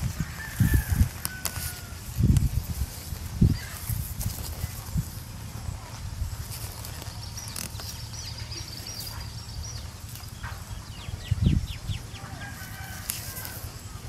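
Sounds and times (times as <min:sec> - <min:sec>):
low steady rumble: 0:00.0 - 0:14.0
birds chirping: 0:03.2 - 0:14.0.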